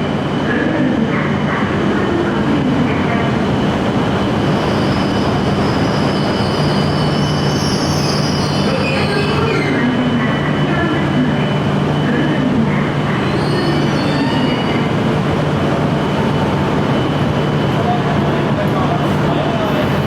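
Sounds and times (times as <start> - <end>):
train wheels squealing on rails: 4.4 - 15.0.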